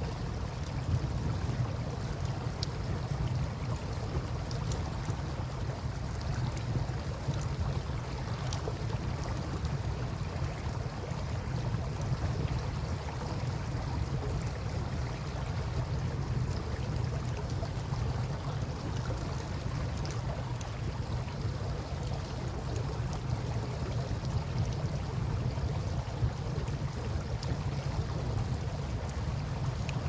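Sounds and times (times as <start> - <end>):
campfire crackling and popping: 18.7 - 30.0.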